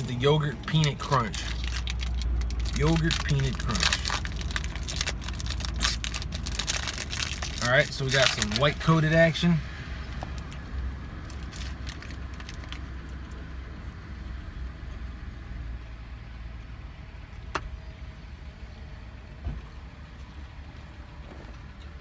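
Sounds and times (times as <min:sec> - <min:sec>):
low rumble: 0:00.0 - 0:08.5.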